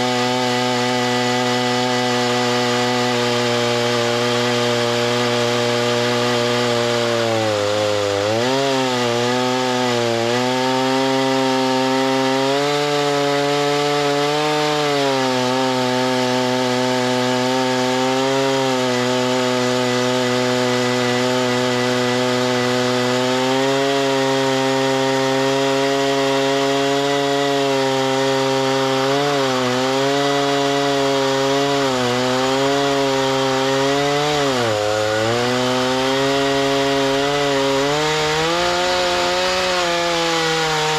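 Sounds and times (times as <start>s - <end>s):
chainsaw sawing a log: 0.0s - 40.9s.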